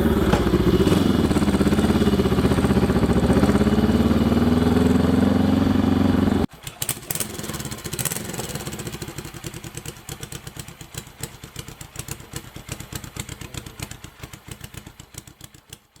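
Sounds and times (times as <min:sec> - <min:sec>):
exhaust beat: 0:00.0 - 0:06.5
motorcycle engine running: 0:00.0 - 0:16.0.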